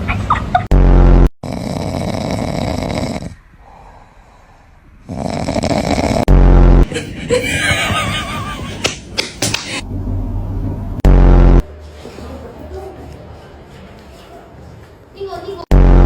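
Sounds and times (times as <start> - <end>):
cat snoring: 1.4 - 3.4, 5.0 - 6.3.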